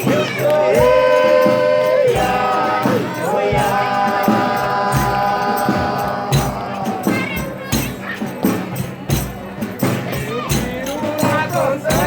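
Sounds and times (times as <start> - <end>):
voices singing a held chord: 0.0 - 8.5
drum strokes: 0.0 - 12.0.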